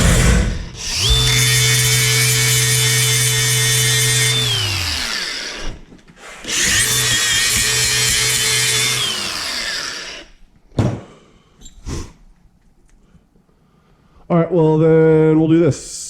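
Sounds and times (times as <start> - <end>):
sharp knock: 0.0 - 4.0
electric power tool spinning: 0.0 - 10.3.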